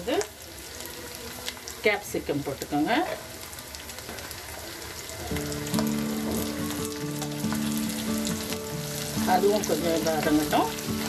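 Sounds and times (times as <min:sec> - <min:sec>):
vegetables sizzling in hot oil: 0:00.0 - 0:11.0
background music with held notes: 0:03.4 - 0:11.0.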